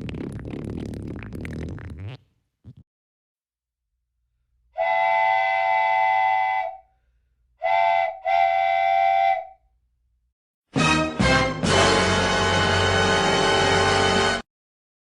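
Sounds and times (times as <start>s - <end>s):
horn blasts: 10.8s - 14.4s.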